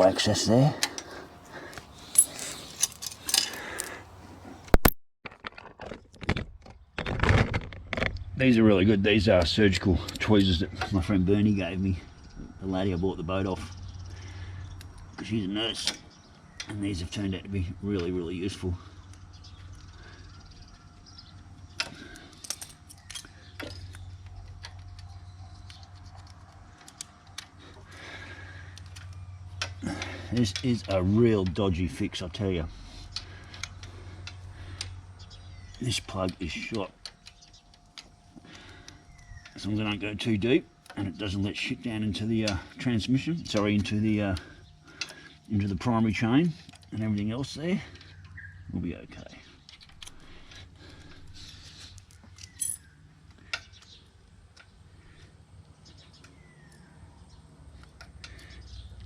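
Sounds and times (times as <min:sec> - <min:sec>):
low steady hum: 0:00.0 - 0:04.8, 0:07.8 - 0:59.0
small tools handled clicking: 0:01.7 - 0:04.0.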